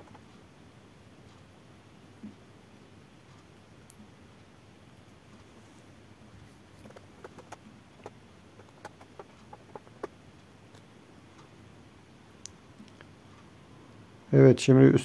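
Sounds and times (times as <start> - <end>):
faint sharp clicks and taps: 6.4 - 11.5.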